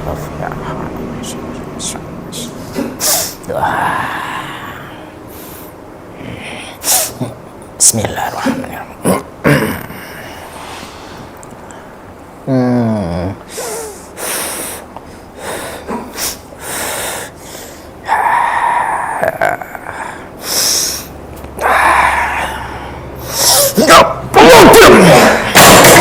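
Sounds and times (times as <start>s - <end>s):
vocal burst: 18.1s - 26.0s.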